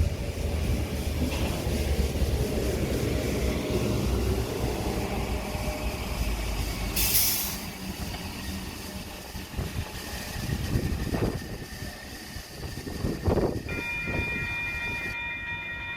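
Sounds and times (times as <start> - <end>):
electric train rumbling: 0.0 - 15.9
hiss of released air: 6.9 - 7.7.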